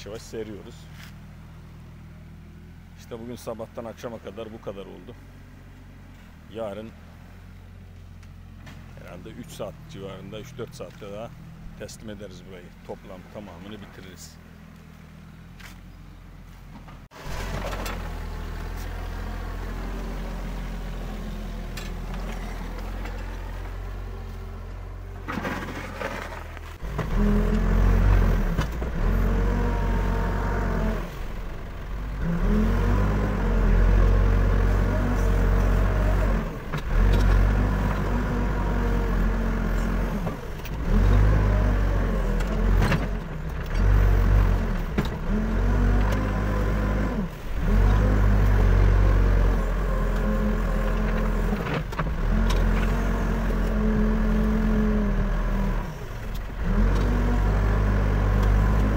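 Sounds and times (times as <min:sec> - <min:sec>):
backhoe diesel engine revving: 0:17.0 - 0:58.9.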